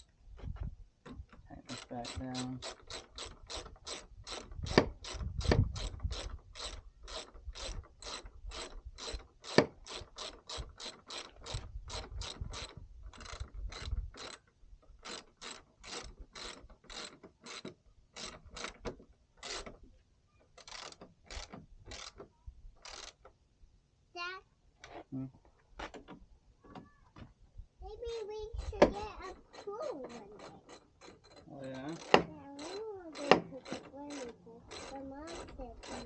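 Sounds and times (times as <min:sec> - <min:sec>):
hand ratchet clicking: 0:01.7 - 0:14.4, 0:15.0 - 0:19.8, 0:20.6 - 0:22.2, 0:22.8 - 0:23.3, 0:28.1 - 0:36.0.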